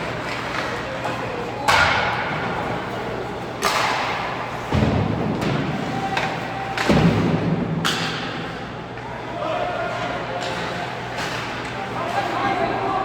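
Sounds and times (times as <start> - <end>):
echoing bangs on rink boards: 1.6 - 2.9, 3.6 - 8.7
heavy thuds on rink boards: 3.6 - 8.3.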